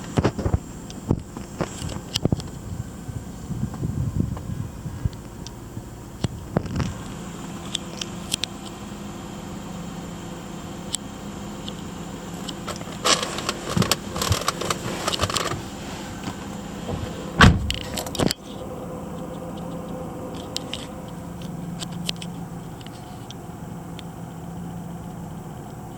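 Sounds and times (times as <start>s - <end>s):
car engine idling: 0.0s - 25.9s
clinking and rattling: 12.4s - 15.6s
loud thump: 16.9s - 18.0s.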